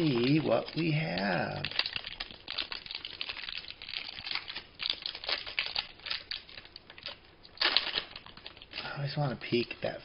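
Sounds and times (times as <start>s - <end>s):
plastic wrapper crinkling and tearing: 0.0s - 10.0s.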